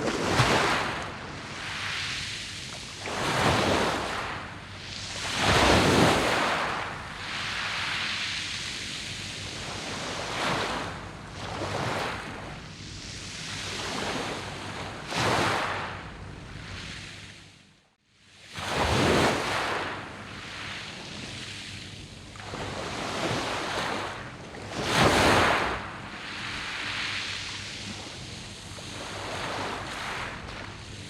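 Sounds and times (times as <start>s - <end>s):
waves breaking on pebble beach: 0.0s - 4.4s, 5.1s - 8.1s, 28.9s - 30.9s.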